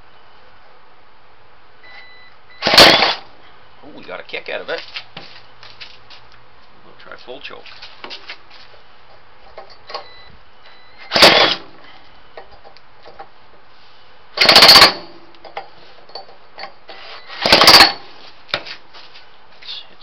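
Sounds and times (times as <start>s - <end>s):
small engine kicking: 2.6s - 3.2s, 11.1s - 11.6s, 14.4s - 15.1s, 17.4s - 18.0s
starter motor rattling: 2.6s - 3.2s, 11.0s - 11.7s, 14.4s - 15.1s, 17.4s - 18.0s.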